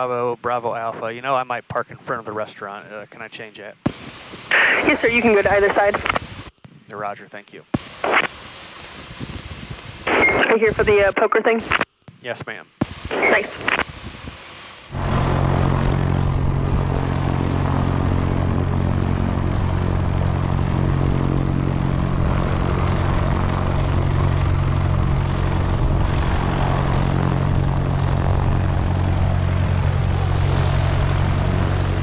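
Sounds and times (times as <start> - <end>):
propeller plane engine running: 14.9 - 32.0.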